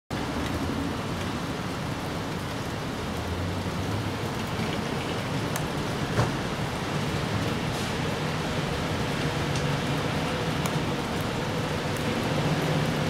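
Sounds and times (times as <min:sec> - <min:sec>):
rain on leaves and grass: 0:00.1 - 0:13.0
water drips ticking: 0:04.1 - 0:05.9.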